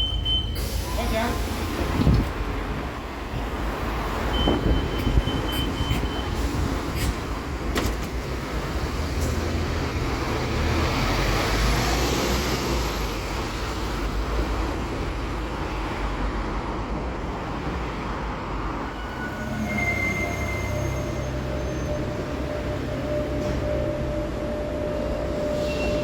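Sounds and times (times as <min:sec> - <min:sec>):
bus engine rumble: 0:00.0 - 0:26.0
road noise: 0:00.0 - 0:26.0
brief high squeal: 0:18.9 - 0:22.1, 0:25.4 - 0:26.0.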